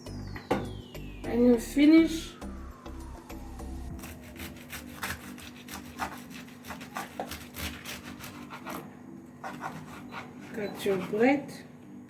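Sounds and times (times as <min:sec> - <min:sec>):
knife sawing through bread: 0:04.0 - 0:11.4.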